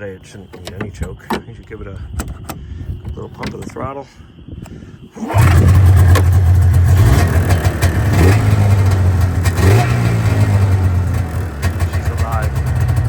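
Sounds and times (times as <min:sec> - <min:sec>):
snowmobile engine idling: 0:05.2 - 0:13.0.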